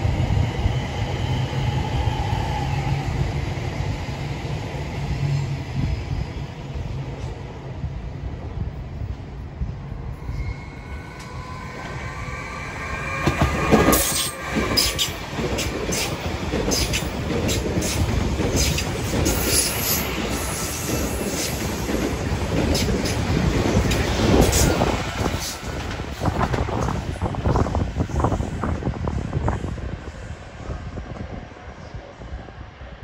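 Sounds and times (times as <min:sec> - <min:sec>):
rumble of wheels on rail: 0:00.0 - 0:33.0
train wheels clattering over rail joints: 0:13.2 - 0:27.0.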